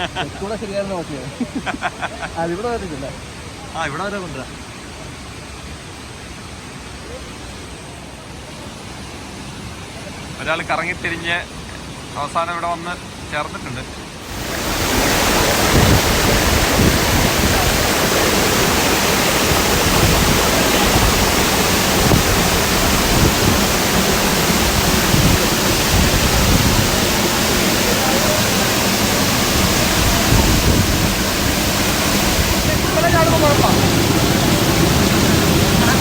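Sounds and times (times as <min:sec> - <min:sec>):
waterfall rushing: 0:14.1 - 0:36.0.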